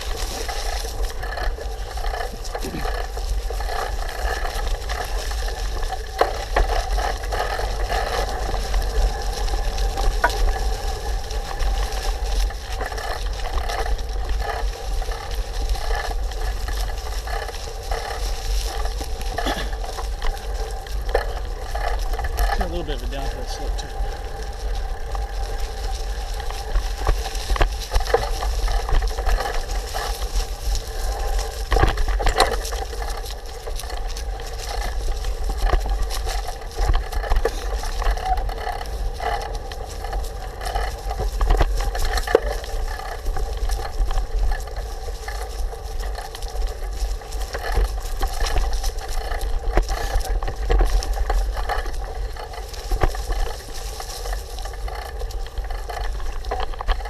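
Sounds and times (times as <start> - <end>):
bicycle clicks and rattles: 0.0 - 57.0
constant hum: 0.0 - 57.0
wind rumble on microphone: 0.0 - 57.0.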